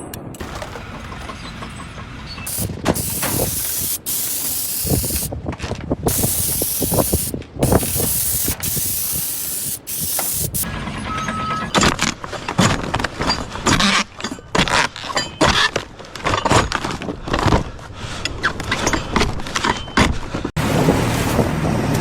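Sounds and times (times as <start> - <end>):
high-pressure spray hissing: 2.5 - 5.3, 6.1 - 10.7.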